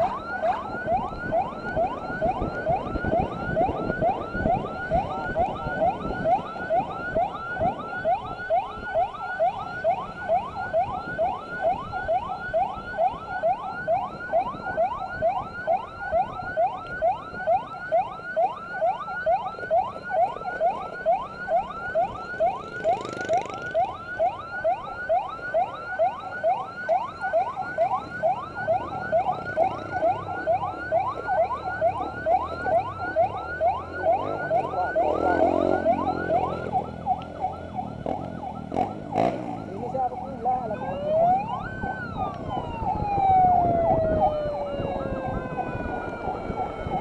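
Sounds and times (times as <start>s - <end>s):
electronic siren yelping: 0.0s - 47.0s
vehicle passing: 22.5s - 23.9s, 28.5s - 47.0s.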